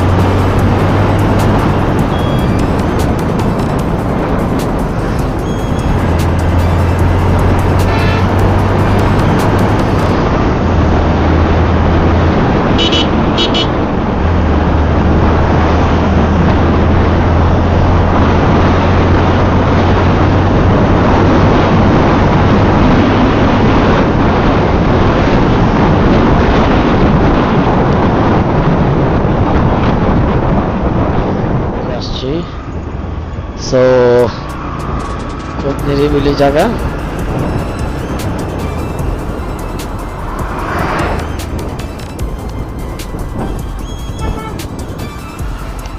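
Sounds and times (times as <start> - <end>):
horn beeps: 0.0 - 3.9, 4.6 - 10.2, 12.8 - 13.7, 36.8 - 45.9
motorcycle engine hum: 0.0 - 27.7, 34.3 - 45.9
wind noise on microphone: 0.0 - 45.9.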